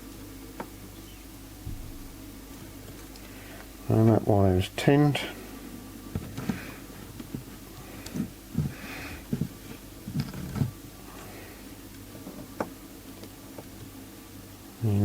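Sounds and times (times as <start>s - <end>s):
low electrical hum: 0.0s - 15.0s
soft breath or sniff: 7.8s - 9.3s.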